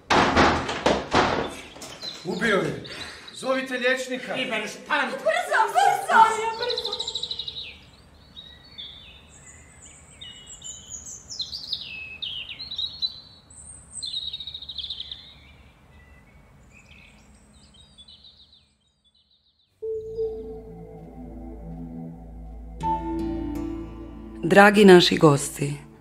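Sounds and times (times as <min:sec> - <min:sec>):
songbirds chirping and warbling: 0:01.3 - 0:21.0.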